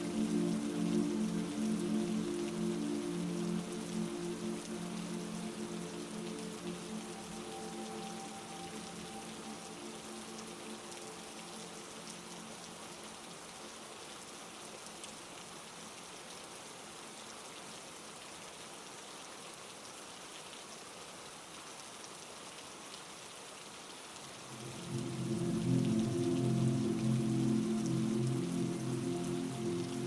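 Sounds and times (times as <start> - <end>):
low musical tone: 0.0 - 13.3, 24.4 - 30.0
soft musical drone: 0.0 - 13.5, 24.4 - 30.0
heavy rain: 0.0 - 30.0.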